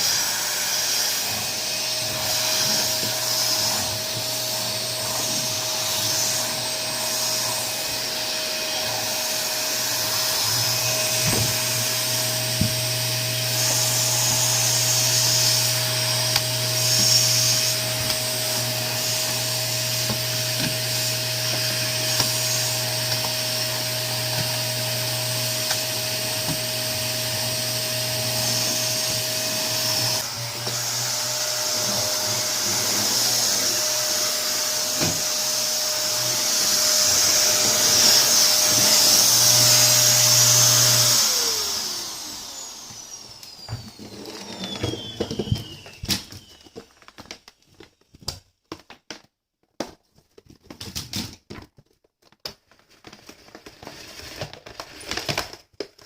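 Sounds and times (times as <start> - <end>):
vacuum cleaner running: 0.0 - 47.3.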